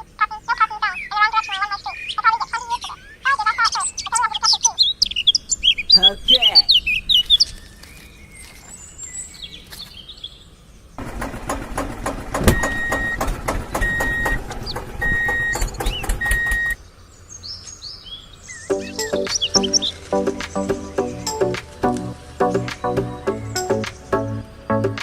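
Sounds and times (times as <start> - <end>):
faint bird chirps: 0.0 - 10.6
rapid mechanical clatter: 11.0 - 16.8
music: 18.7 - 25.0.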